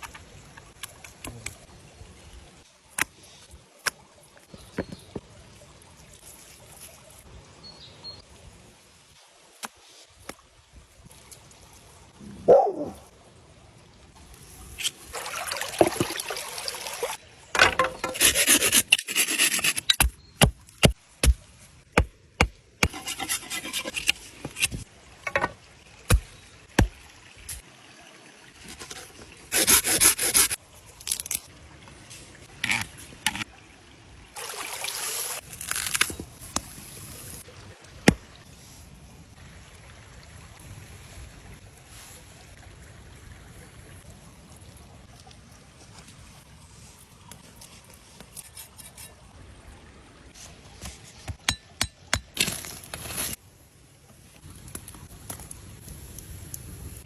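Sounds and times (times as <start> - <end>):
knife cutting and scraping: 17.8 - 20.2, 22.8 - 24.9, 28.7 - 31.4, 32.6 - 33.5, 47.3 - 49.2.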